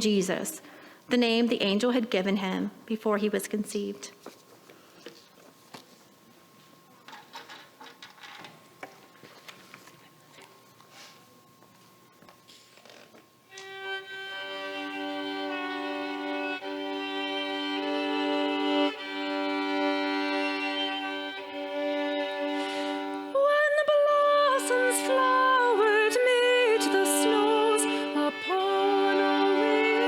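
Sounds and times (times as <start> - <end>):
violin melody: 13.5 - 30.0
soft held chords: 13.6 - 30.0.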